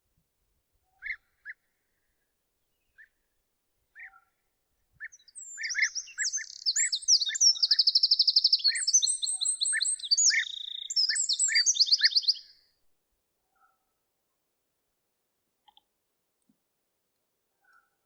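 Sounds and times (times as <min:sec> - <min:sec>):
songbird whistling and trilling: 0:05.0 - 0:12.6
low bird call notes: 0:05.1 - 0:12.5.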